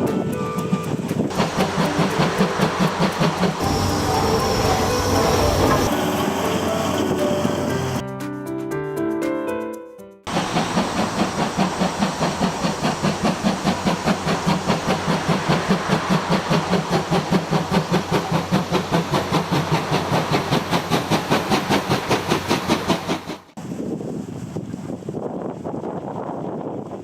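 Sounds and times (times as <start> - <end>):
steam hissing: 0.0 - 8.0, 10.3 - 23.6
steam locomotive chuffing: 0.0 - 8.0, 10.3 - 23.6.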